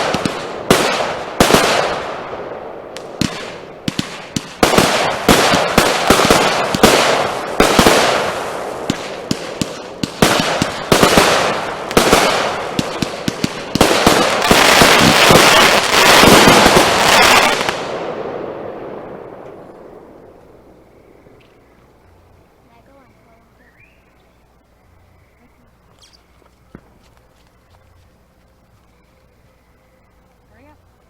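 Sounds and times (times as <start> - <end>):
fireworks bangs: 0.0 - 22.0
fireworks crackling: 0.0 - 31.0.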